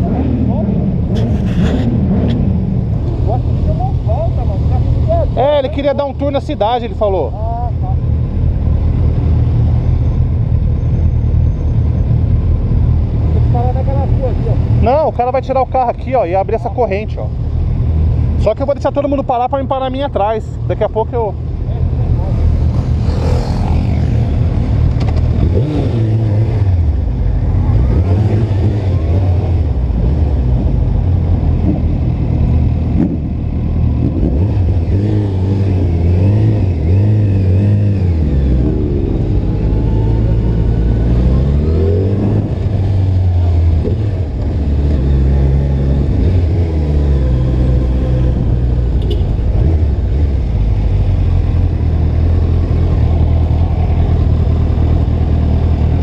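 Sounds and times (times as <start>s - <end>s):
motorcycle engine revving: 21.8s - 56.0s.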